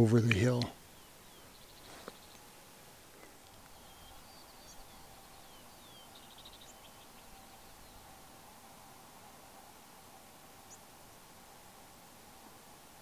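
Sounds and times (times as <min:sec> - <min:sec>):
open-air hiss: 0:00.0 - 0:13.0
small bird chirps and trill: 0:00.9 - 0:02.4, 0:03.6 - 0:08.1.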